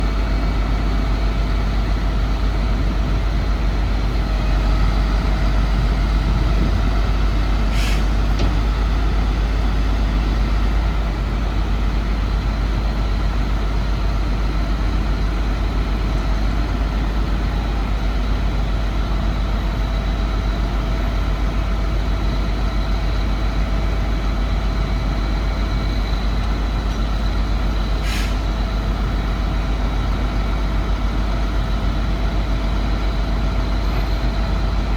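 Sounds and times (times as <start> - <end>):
truck engine idling: 0.0 - 34.9
short air hisses: 7.7 - 8.2, 28.0 - 28.5.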